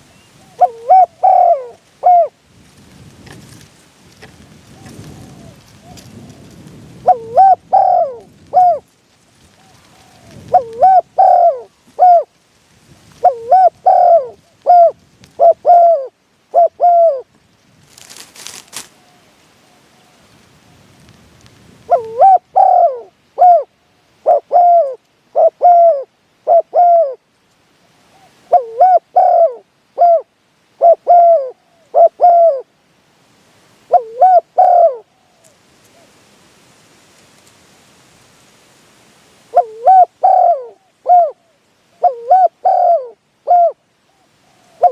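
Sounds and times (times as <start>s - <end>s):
dove cooing: 0.1s - 2.4s, 4.7s - 8.9s, 9.5s - 12.4s, 13.2s - 17.3s, 21.9s - 27.2s, 28.0s - 32.7s, 33.9s - 36.2s, 39.5s - 44.9s.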